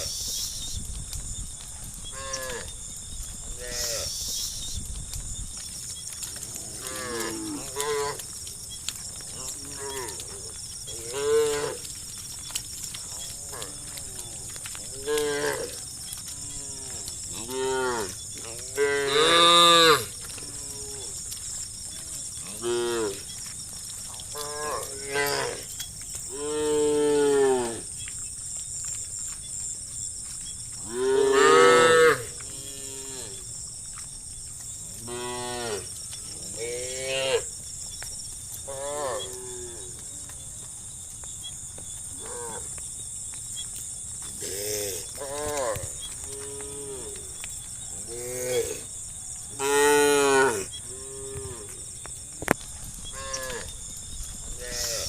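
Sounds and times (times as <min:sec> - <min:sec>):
cows mooing: 0:09.2 - 0:12.0, 0:13.1 - 0:21.4, 0:24.3 - 0:25.7, 0:30.8 - 0:33.4, 0:49.6 - 0:51.8, 0:53.1 - 0:53.7.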